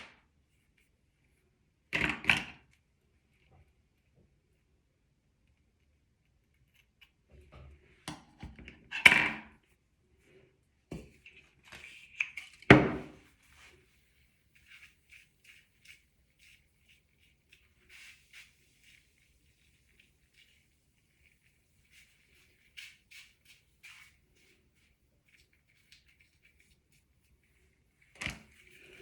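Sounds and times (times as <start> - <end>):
light ticks and scratches: 5.4 - 8.0, 13.2 - 29.0.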